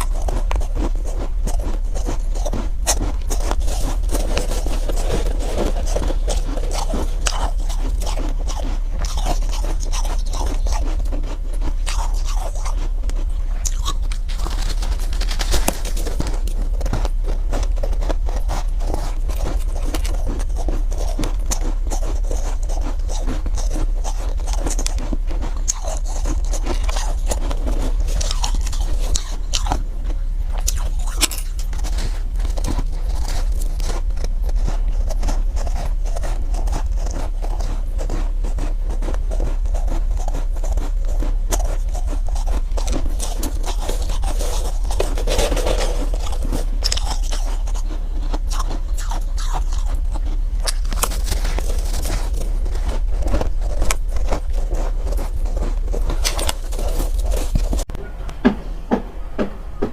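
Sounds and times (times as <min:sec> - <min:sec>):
ice being crunched and chewed: 0:00.0 - 0:57.9
low hum: 0:00.0 - 0:59.9.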